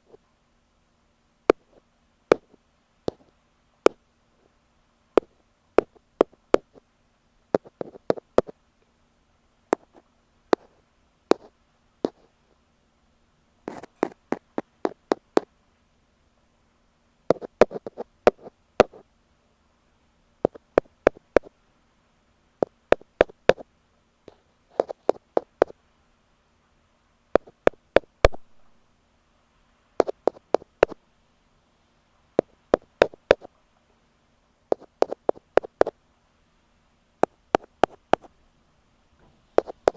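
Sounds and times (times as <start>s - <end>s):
ear pick tapping on microphone: 1.5s - 3.3s, 5.2s - 6.8s, 7.6s - 8.6s, 9.7s - 12.3s, 13.7s - 15.5s, 17.3s - 19.0s, 20.4s - 21.5s, 22.6s - 23.6s, 24.3s - 25.8s, 27.4s - 28.6s, 30.0s - 31.0s, 32.4s - 33.5s, 34.7s - 36.0s, 37.2s - 38.3s, 39.6s - 39.9s.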